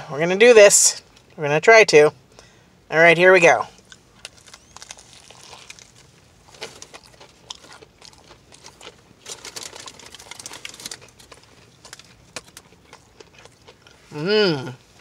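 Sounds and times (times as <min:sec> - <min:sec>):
crisp crunches of chewing: 0:03.7 - 0:15.0.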